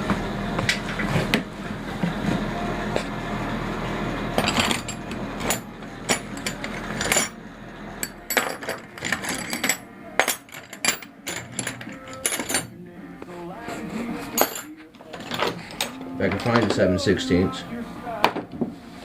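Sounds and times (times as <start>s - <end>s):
metal sockets clinking: 4.4s - 7.4s, 8.0s - 12.7s.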